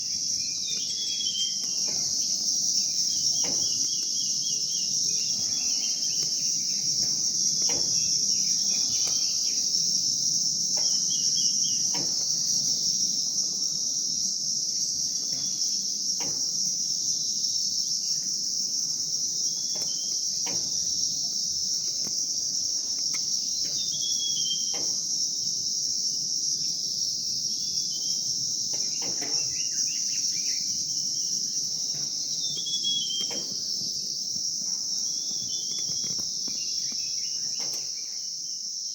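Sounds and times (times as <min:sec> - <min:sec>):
birds chirping: 0:00.0 - 0:12.9, 0:19.3 - 0:22.0, 0:22.8 - 0:24.8, 0:27.6 - 0:33.8, 0:34.9 - 0:38.7
insects droning: 0:00.0 - 0:38.9.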